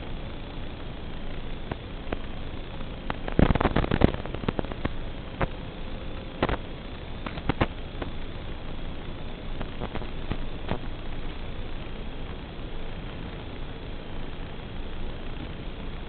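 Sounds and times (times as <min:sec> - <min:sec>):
faint steady tone: 0:00.0 - 0:16.0
crackling pops and knocks: 0:01.6 - 0:02.3, 0:03.0 - 0:05.6, 0:06.4 - 0:08.4, 0:09.6 - 0:11.4.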